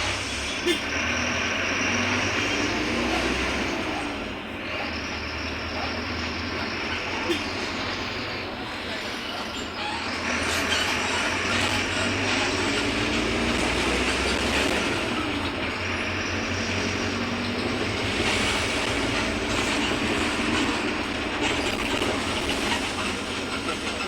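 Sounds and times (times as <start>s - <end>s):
bus diesel engine running: 0.0s - 24.0s.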